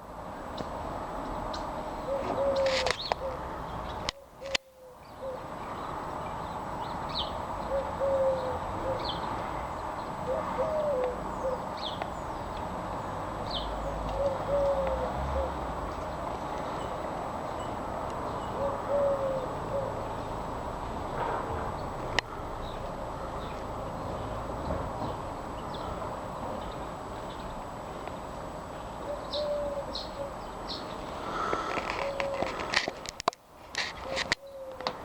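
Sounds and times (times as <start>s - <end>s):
background hiss: 0.0s - 35.0s
pigeon cooing: 2.1s - 3.5s, 7.7s - 9.3s, 10.2s - 11.7s, 13.8s - 15.7s, 18.6s - 20.2s, 29.0s - 30.4s, 31.3s - 32.8s, 34.0s - 35.0s.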